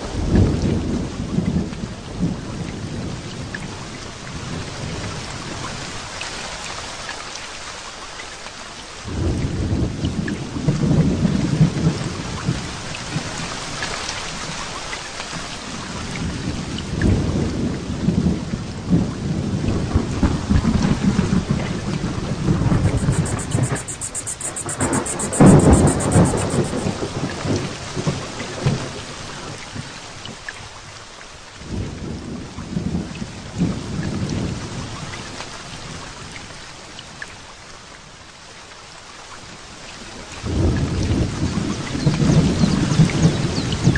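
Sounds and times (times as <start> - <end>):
heavy rain falling: 0.0 - 43.9
loud thunderclap: 9.1 - 13.3, 17.0 - 29.0
thunder rumbling: 17.0 - 29.0.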